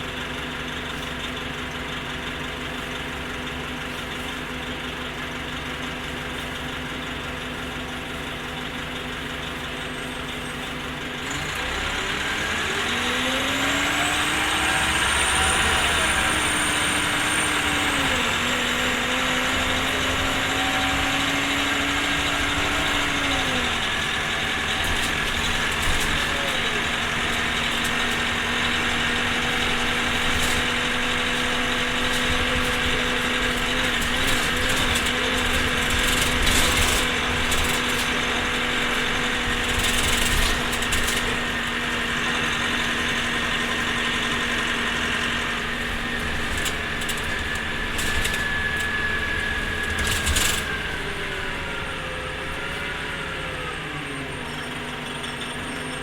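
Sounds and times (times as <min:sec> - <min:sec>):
bus engine whine: 0:00.0 - 0:56.0
clicks and rattles: 0:23.7 - 0:42.0, 0:45.8 - 0:49.0, 0:49.6 - 0:51.2.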